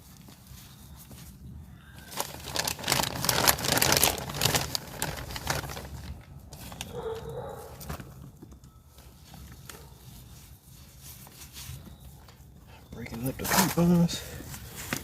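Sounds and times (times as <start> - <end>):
dry peat moss crumbled by hand: 2.0 - 7.0.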